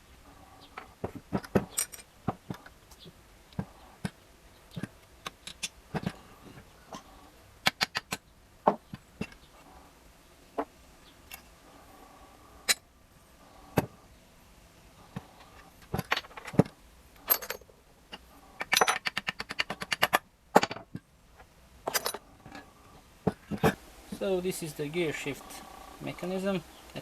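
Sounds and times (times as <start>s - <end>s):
steel parts clinking: 0.8s - 2.6s, 15.4s - 20.8s, 21.8s - 22.6s.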